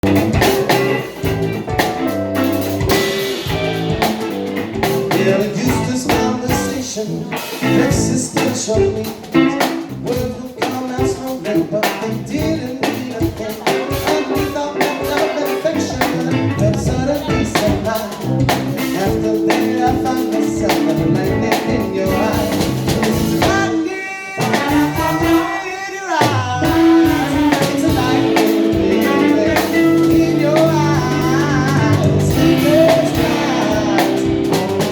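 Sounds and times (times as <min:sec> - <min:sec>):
live blues band: 0:00.0 - 0:34.9
guitar pitch bend: 0:18.4 - 0:23.5, 0:26.6 - 0:34.9.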